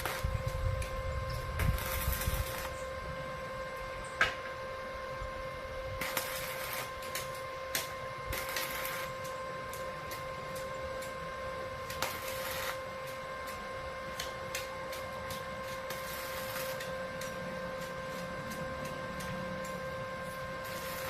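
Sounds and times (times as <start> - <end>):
welding arc crackling: 0.0 - 21.0
welding machine whine: 0.0 - 21.0.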